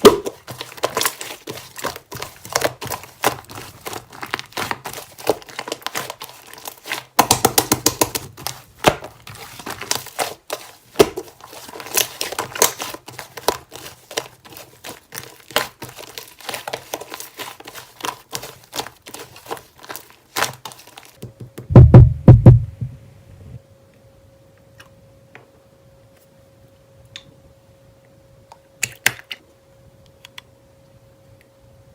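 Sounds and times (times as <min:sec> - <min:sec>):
slime crackling and popping: 0:00.0 - 0:21.2
loud low thuds: 0:21.7 - 0:23.1.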